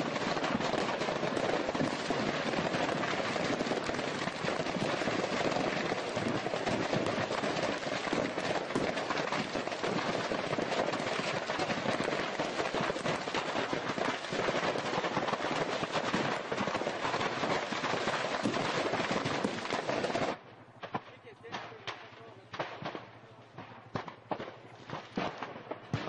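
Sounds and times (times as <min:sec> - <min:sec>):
firecrackers crackling: 0:00.0 - 0:26.0.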